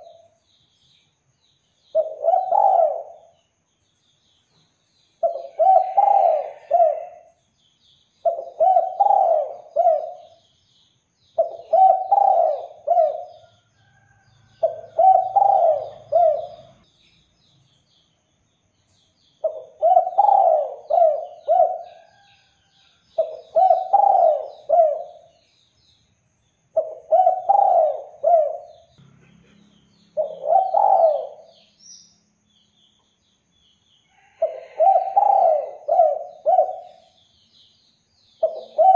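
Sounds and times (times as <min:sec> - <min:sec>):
small birds chirping faintly: 0:00.0 - 0:38.9
dove cooing: 0:01.9 - 0:03.4, 0:05.2 - 0:07.3, 0:08.2 - 0:10.4, 0:11.4 - 0:13.4, 0:14.6 - 0:16.8, 0:19.4 - 0:22.3, 0:23.2 - 0:25.4, 0:26.8 - 0:28.9, 0:30.2 - 0:31.6, 0:34.4 - 0:37.1, 0:38.4 - 0:38.9.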